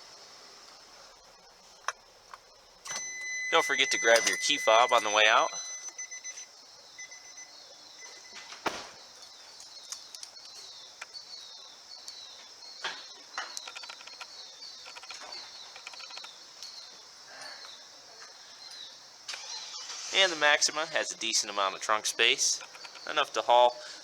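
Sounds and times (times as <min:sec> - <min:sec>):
small birds chirping: 0:00.0 - 0:24.0
thud: 0:08.6 - 0:09.0
sharp clicks: 0:13.4 - 0:16.8, 0:22.2 - 0:23.4.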